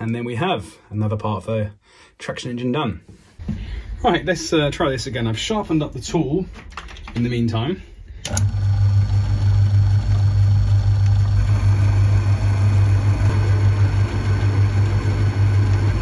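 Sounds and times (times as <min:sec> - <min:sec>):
lathe motor hum: 0:08.3 - 0:16.0.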